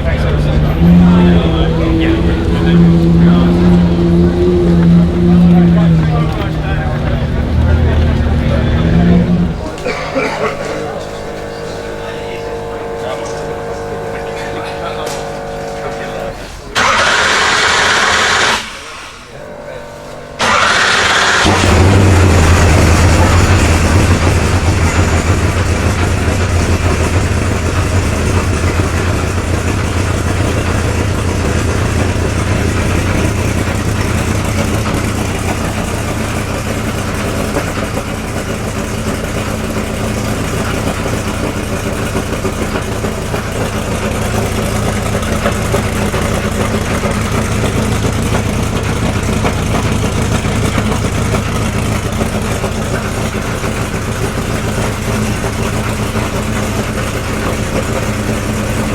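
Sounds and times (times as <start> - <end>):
car engine idling: 0.0 - 58.9.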